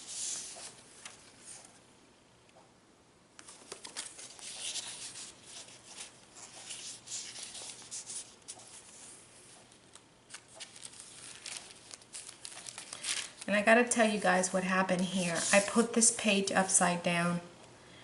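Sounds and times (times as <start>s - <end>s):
paper pages rustling: 0.0s - 1.8s, 3.4s - 14.1s, 14.9s - 16.1s.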